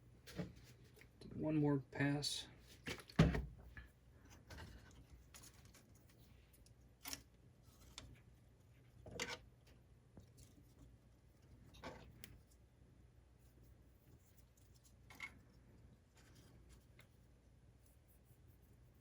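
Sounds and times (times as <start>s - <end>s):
faint rubbing and ticking handling: 13.3s - 19.0s.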